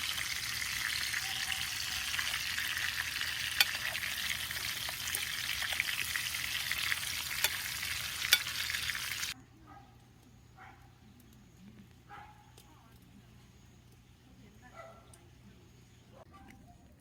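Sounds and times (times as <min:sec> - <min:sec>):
food sizzling on hot metal: 0:00.0 - 0:09.4.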